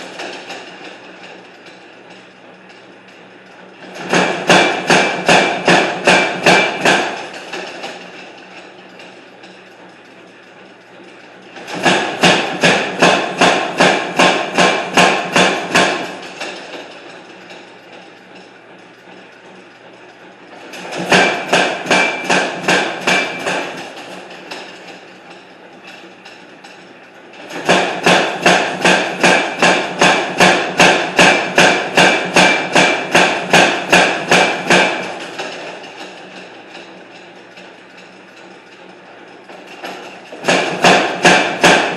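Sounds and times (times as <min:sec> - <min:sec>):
hammer striking hot iron: 0:03.9 - 0:08.0, 0:11.6 - 0:16.9, 0:20.7 - 0:24.7, 0:27.5 - 0:35.5, 0:40.4 - 0:41.9
hammer ringing on iron: 0:11.9 - 0:16.2.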